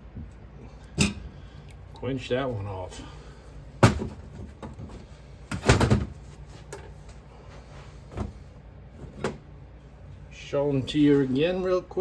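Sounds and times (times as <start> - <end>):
low steady hum: 0.0 - 12.0
hard knocks and clunks: 3.8 - 4.9.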